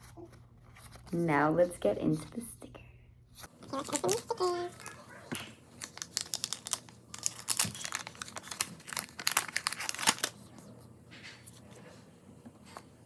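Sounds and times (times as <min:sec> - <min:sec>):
packaging crinkling and rustling: 0:03.4 - 0:11.7.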